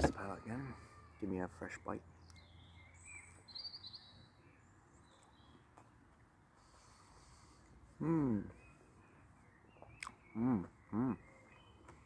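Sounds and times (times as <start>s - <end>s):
faint bird chirps and trill: 0.0s - 5.6s, 8.0s - 12.0s.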